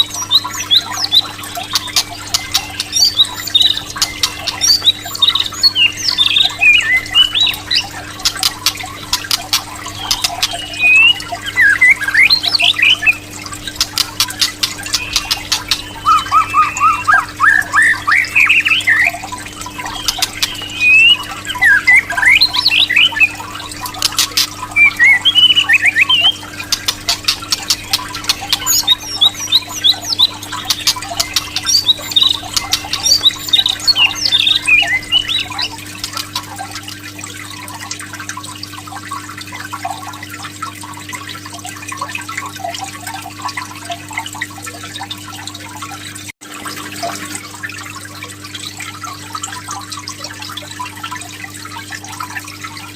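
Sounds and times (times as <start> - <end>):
bird whistling and squawking: 0.0 - 36.4
trickling water: 0.0 - 52.9.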